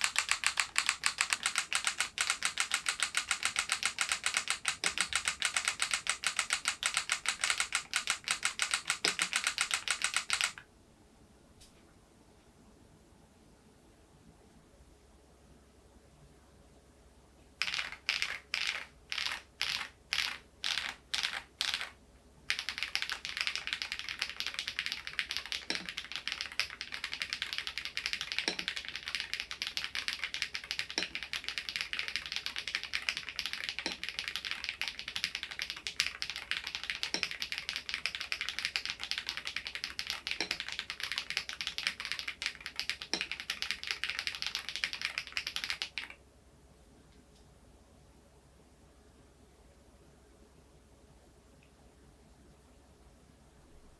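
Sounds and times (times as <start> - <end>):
mechanical keyboard typing fast: 0.0 - 10.6, 17.6 - 46.2.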